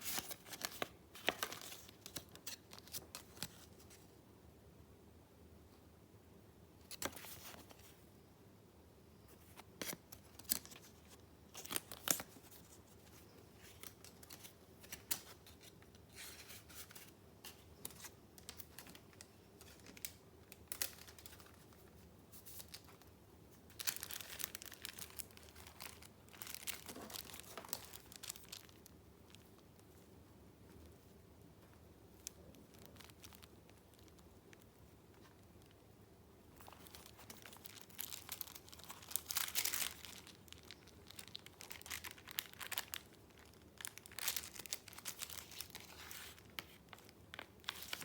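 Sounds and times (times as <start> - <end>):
paper crinkling and rustling: 0.0 - 4.1, 6.9 - 8.0, 9.3 - 35.8, 36.6 - 48.0.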